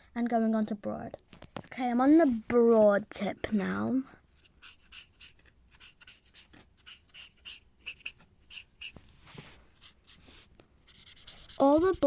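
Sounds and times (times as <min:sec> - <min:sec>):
marker pen rubbing on paper: 0:04.4 - 0:12.0.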